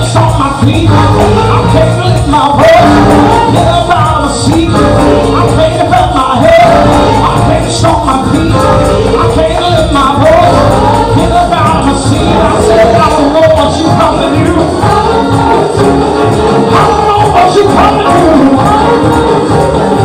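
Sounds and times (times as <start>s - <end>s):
gospel singing over band: 0.0s - 20.0s.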